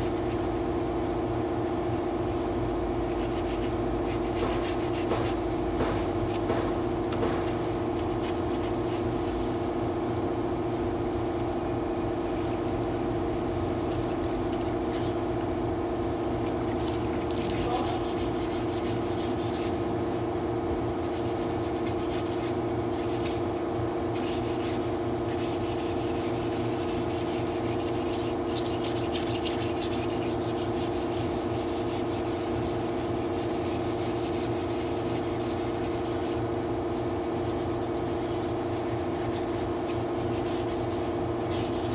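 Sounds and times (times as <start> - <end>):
sander scraping metal panel: 3.3 - 9.2.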